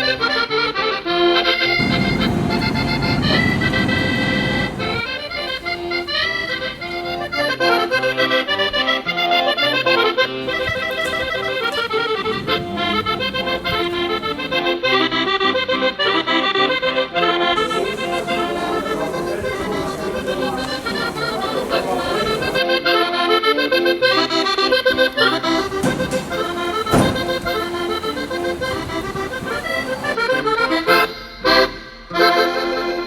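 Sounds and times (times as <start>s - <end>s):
accordion playing lively folk tune: 0.0s - 33.0s.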